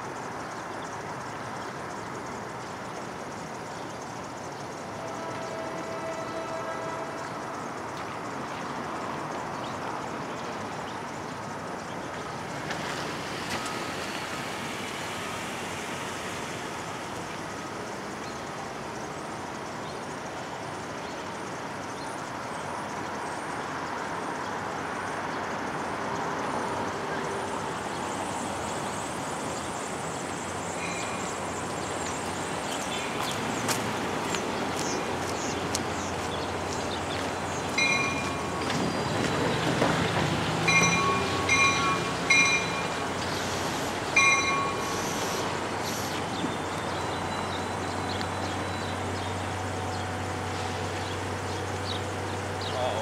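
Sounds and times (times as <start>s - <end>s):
train rumbling: 4.6s - 10.8s, 25.8s - 53.0s
high ringing tones: 30.8s - 31.8s, 37.8s - 39.1s, 40.7s - 43.5s, 44.1s - 45.4s.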